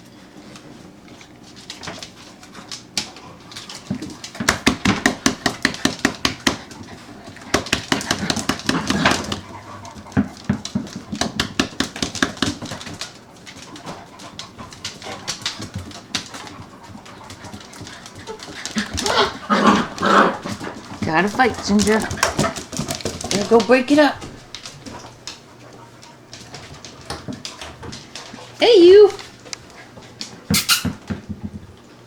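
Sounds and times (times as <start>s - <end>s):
puppies scuffling on hard floor: 0.0s - 32.0s
puppies yapping: 16.5s - 22.7s, 30.5s - 31.1s.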